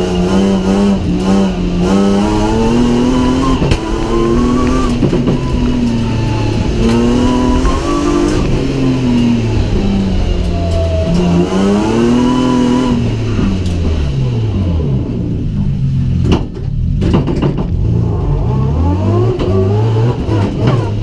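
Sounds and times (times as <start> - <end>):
car engine revs: 0.0 - 21.0
sharp knocks: 16.2 - 17.8.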